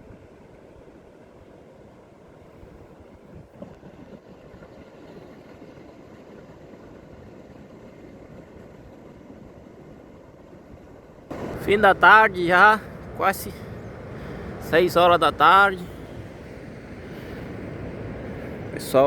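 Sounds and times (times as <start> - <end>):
wind buffeting microphone: 11.3 - 19.0.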